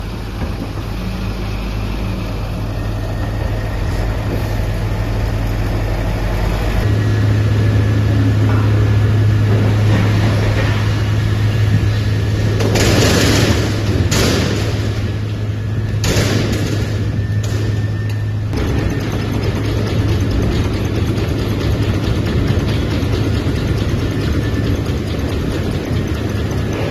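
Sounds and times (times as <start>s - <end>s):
wood chipper humming: 0.0s - 26.9s.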